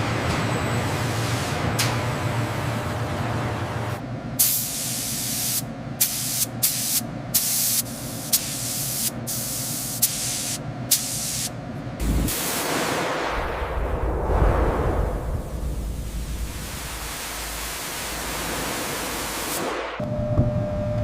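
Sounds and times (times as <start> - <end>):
hissing spray bursts: 4.4 - 11.5.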